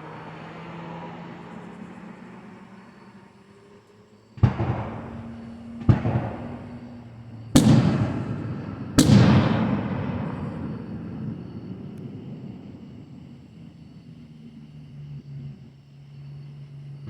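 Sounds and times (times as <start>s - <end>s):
firework shells bursting: 4.4s - 13.7s.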